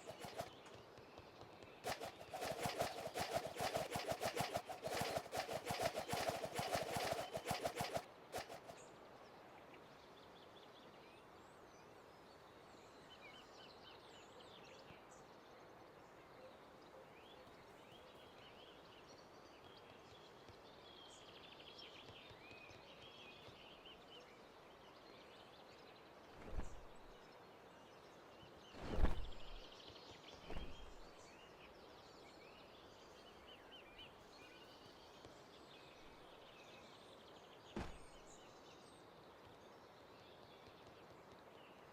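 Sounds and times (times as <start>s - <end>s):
steady outdoor hiss: 0.0s - 0.6s.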